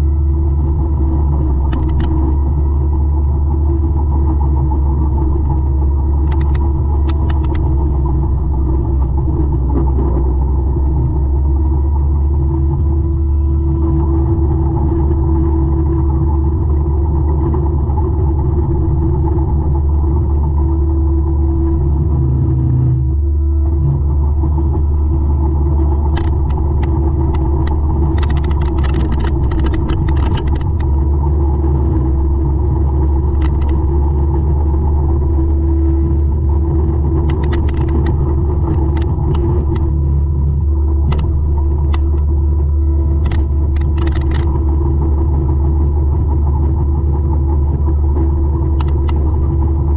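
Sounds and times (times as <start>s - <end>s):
mulcher diesel engine humming: 0.0s - 49.9s
sharp clicks and knocks: 1.5s - 2.4s, 5.3s - 8.2s, 25.9s - 31.0s, 33.1s - 34.0s, 37.2s - 40.0s, 41.0s - 42.3s, 43.2s - 44.6s, 48.7s - 49.4s.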